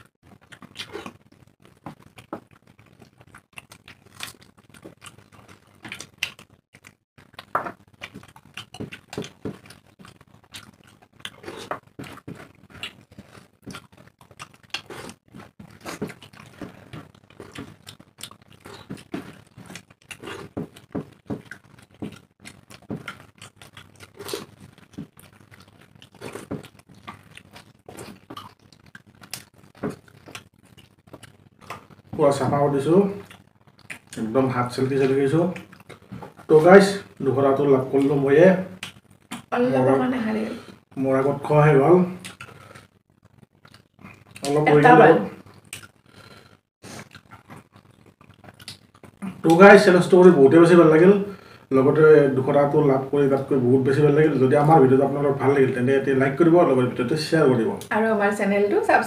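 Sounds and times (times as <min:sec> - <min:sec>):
food crunching: 0:00.0 - 0:39.6, 0:40.6 - 0:57.9
people chewing: 0:00.0 - 0:57.9
lip smacks: 0:38.8 - 0:39.5, 0:42.2 - 0:42.6, 0:46.8 - 0:49.5.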